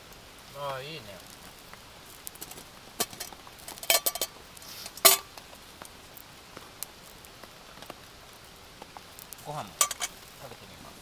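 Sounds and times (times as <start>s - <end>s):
cutlery clinking on cookware: 2.4s - 4.3s, 4.9s - 5.4s, 9.8s - 10.2s.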